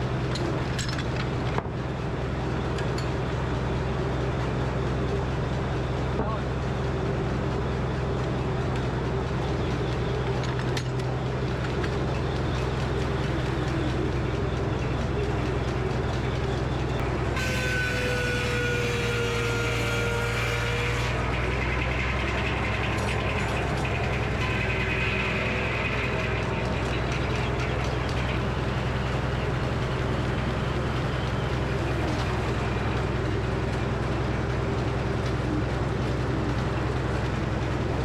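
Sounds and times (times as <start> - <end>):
sawmill droning: 0.0 - 38.0
saw whining through log: 16.9 - 34.1.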